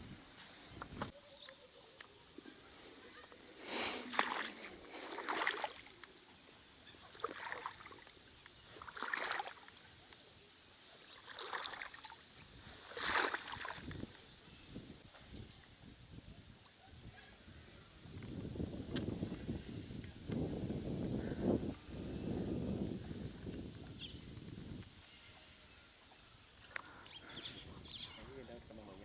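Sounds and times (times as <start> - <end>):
floodwater splashing and sloshing: 4.0 - 6.1, 7.0 - 10.2, 11.1 - 14.2.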